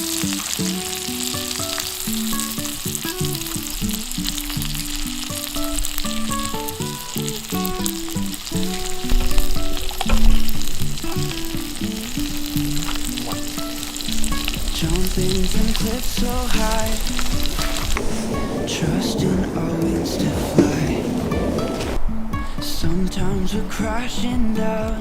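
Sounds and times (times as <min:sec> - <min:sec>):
meat sizzling over fire: 0:00.0 - 0:19.8
instrumental background music: 0:00.0 - 0:25.0.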